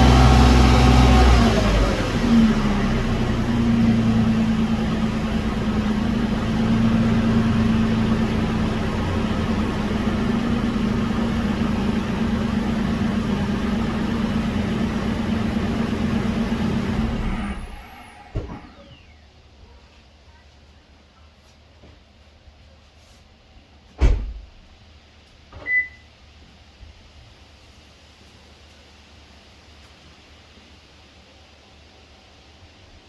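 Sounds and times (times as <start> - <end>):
car engine drone: 0.0 - 19.2
road noise: 0.0 - 19.2.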